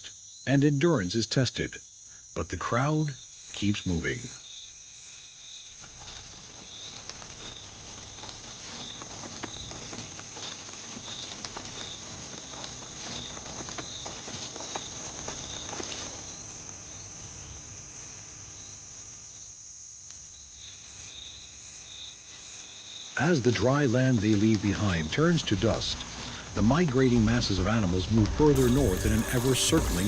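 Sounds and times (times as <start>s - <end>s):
insects chirping: 0.0s - 28.0s, 28.6s - 30.0s
herd hooves pattering: 5.7s - 16.8s, 25.6s - 30.0s.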